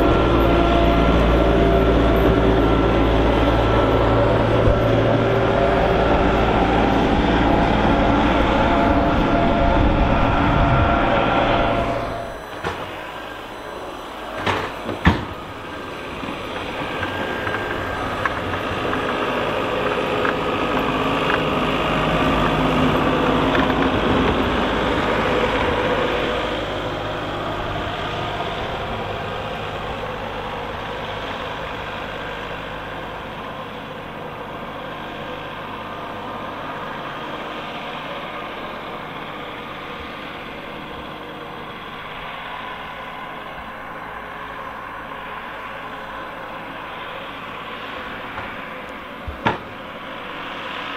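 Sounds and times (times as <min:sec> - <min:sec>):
heavy vehicle engine working: 0:00.0 - 0:50.9
sharp knocks: 0:49.3 - 0:49.7.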